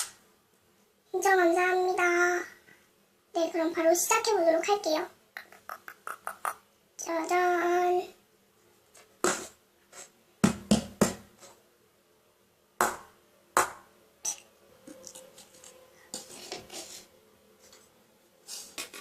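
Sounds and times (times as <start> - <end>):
sharp knocks on tabletop: 10.4 - 11.3, 12.8 - 13.8.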